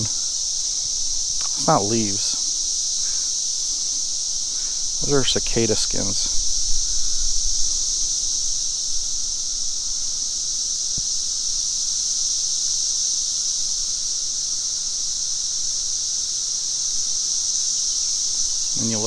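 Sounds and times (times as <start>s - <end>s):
cicadas droning: 0.0s - 19.0s.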